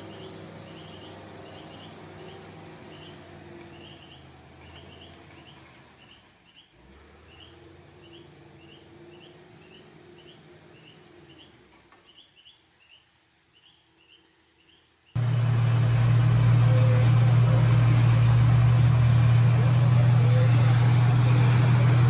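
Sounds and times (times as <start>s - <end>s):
low hum: 15.2s - 22.0s.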